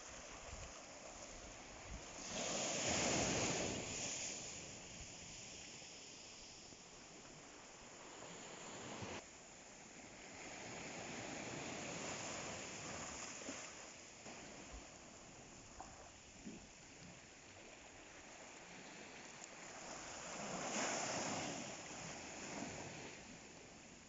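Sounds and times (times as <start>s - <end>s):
sea waves washing onto shore: 0.0s - 9.2s, 10.0s - 24.0s.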